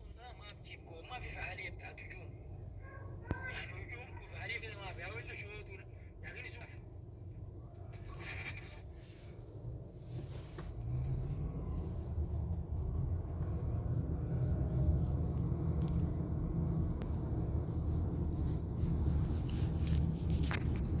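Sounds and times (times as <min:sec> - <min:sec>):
sports car engine rumbling: 0:05.9 - 0:21.0.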